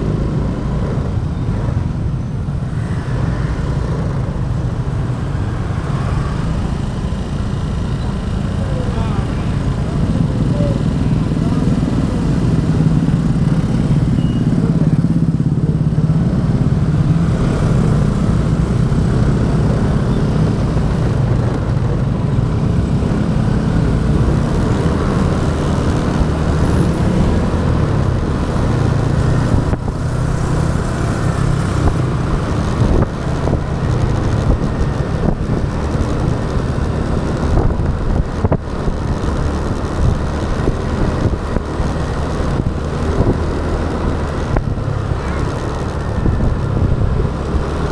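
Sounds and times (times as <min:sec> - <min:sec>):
road noise: 0:00.0 - 0:47.9
motorbike engine running: 0:03.0 - 0:47.9.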